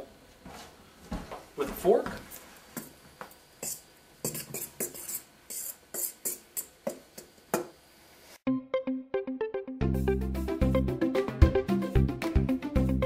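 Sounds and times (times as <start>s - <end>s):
fork scraping in a bowl: 3.6s - 6.8s
plucked or keyboard music: 8.5s - 13.0s.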